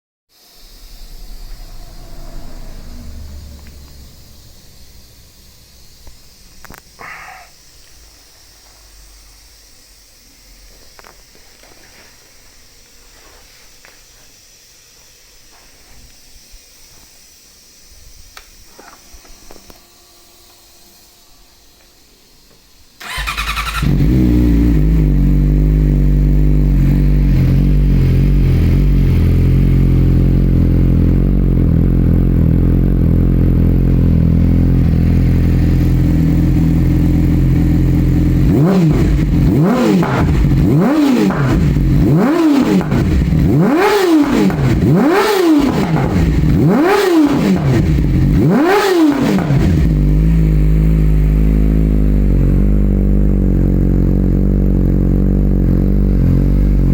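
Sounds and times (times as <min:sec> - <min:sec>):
motorcycle engine idling: 0:00.5 - 0:08.1, 0:23.0 - 0:56.9
motorcycle throttle blips: 0:00.6 - 0:07.0, 0:22.5 - 0:56.9.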